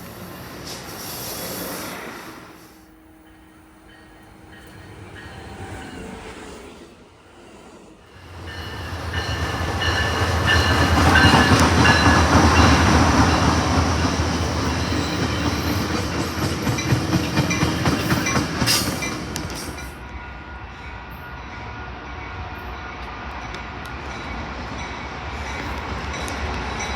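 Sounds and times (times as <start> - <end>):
train wheels clicking on rails: 8.0 - 20.2, 23.0 - 26.9.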